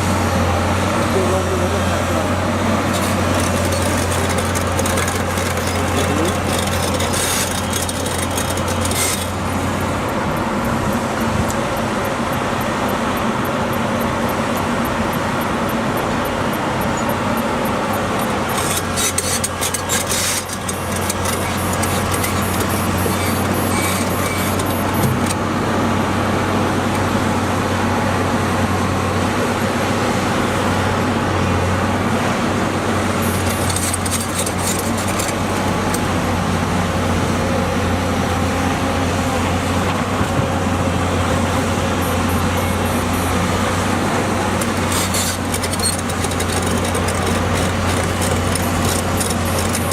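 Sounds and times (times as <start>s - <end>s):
diesel engine humming: 0.0s - 49.9s
metallic rattling and scraping: 2.8s - 10.0s, 17.9s - 25.3s, 33.2s - 36.0s, 44.5s - 49.9s.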